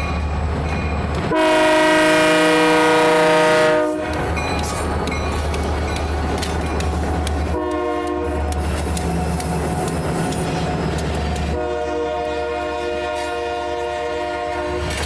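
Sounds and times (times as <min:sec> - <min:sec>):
locomotive engine rumbling: 0:00.0 - 0:15.0
locomotive air horn blasts: 0:01.3 - 0:04.2, 0:07.5 - 0:08.5, 0:11.5 - 0:15.0.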